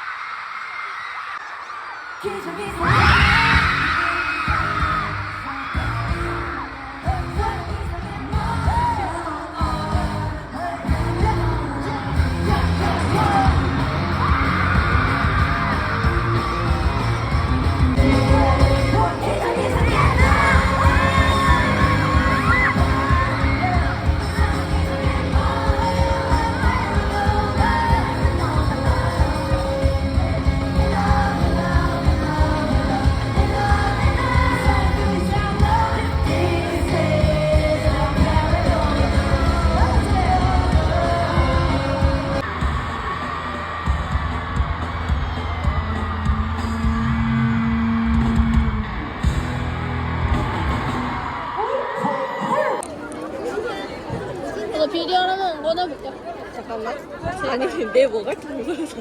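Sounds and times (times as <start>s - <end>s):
pop concert music with heavy bass: 0.0s - 54.5s
audience yelling along: 0.0s - 59.0s
person singing: 2.2s - 15.4s, 18.0s - 42.6s.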